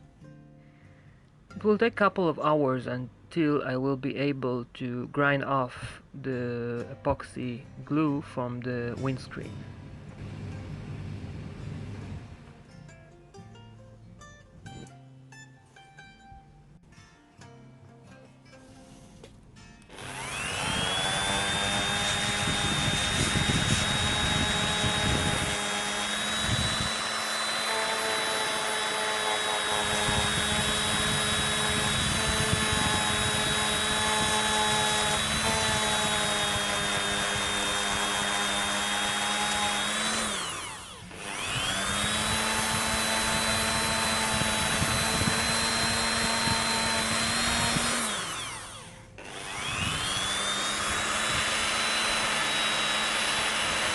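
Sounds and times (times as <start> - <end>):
rotary tool grinding: 19.9 - 53.9.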